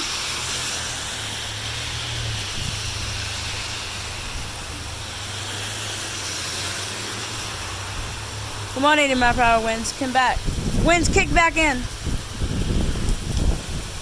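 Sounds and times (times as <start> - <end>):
wind blowing on microphone: 2.1 - 5.0, 7.9 - 14.0.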